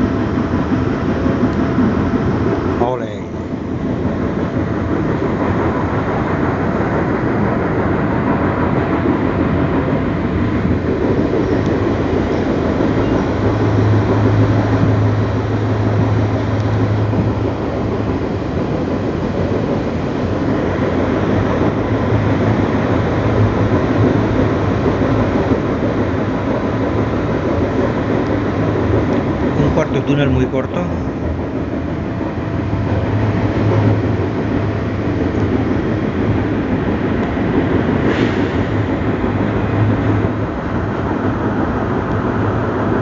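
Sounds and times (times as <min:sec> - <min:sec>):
low drone: 0:00.0 - 0:43.0
train wheels rumbling: 0:00.0 - 0:43.0.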